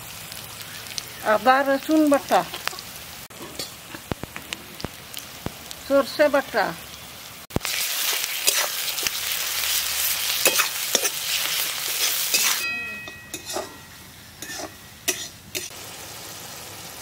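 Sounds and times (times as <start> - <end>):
onions sizzling in hot oil: 0.0 - 17.0
metal spatula scraping pan: 10.4 - 15.7.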